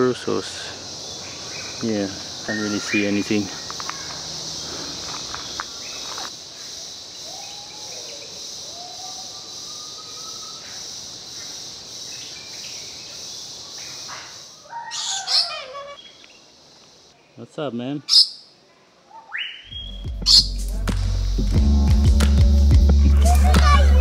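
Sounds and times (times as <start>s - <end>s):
chirping bird calls: 0.0s - 6.3s, 13.8s - 16.5s
high insect drone: 0.0s - 17.2s, 19.7s - 24.0s
soft whistled bird notes: 19.1s - 20.6s.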